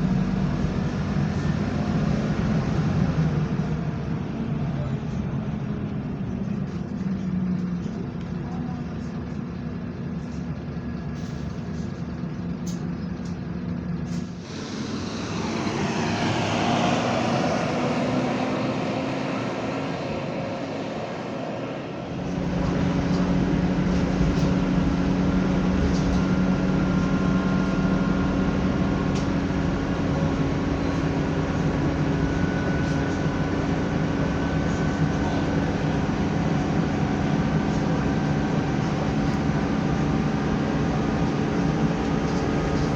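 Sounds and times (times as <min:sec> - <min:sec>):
bus diesel engine running: 0:00.0 - 0:42.9
sudden rush of noise: 0:14.4 - 0:23.7.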